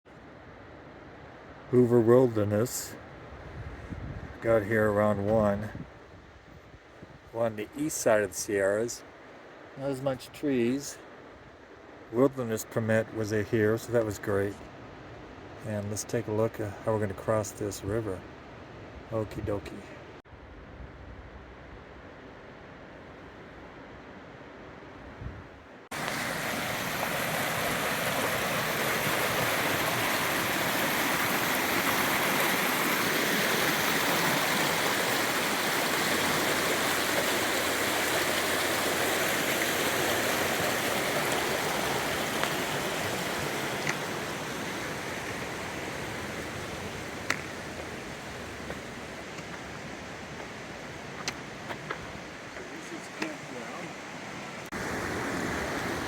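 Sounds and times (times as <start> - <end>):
water rushing over rocks: 25.9 - 56.0.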